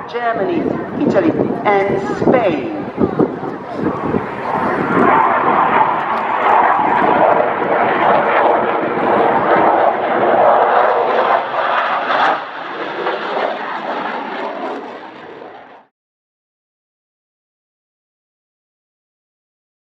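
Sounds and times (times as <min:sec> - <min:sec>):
jet engines rushing: 0:00.0 - 0:15.9.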